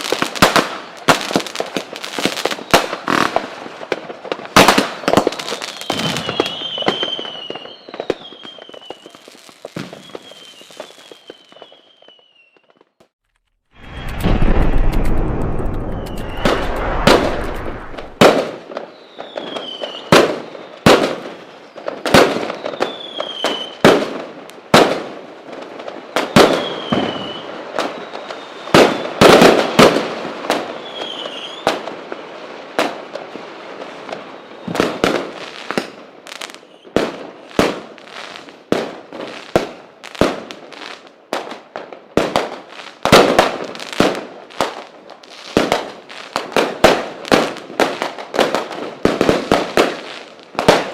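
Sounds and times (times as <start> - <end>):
falling firework whistles: 0.0 - 3.3, 4.7 - 13.1, 13.8 - 23.9, 26.2 - 32.3, 33.8 - 38.5
fireworks bangs with echo: 13.8 - 44.8, 45.5 - 50.9.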